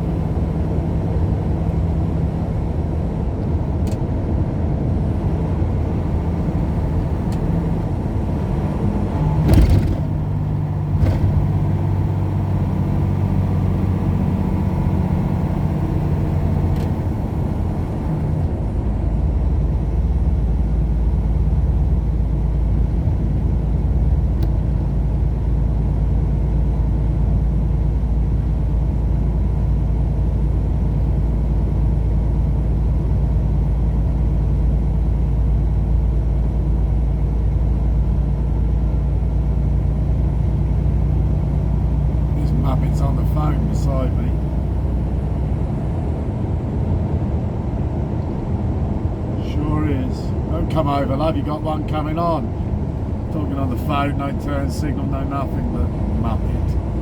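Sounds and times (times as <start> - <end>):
truck engine drone: 0.0 - 57.0.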